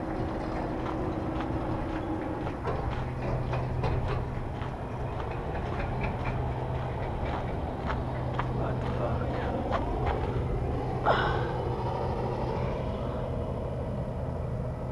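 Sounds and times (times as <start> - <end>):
sharp clicks and clanks: 0.0 - 8.6
low mechanical hum: 0.0 - 14.9.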